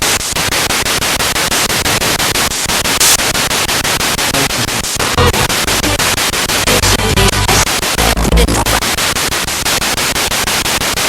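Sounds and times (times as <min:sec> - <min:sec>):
radio static sweeping: 0:02.9 - 0:09.4
radio broadcast fragment: 0:03.0 - 0:03.3, 0:04.4 - 0:09.0.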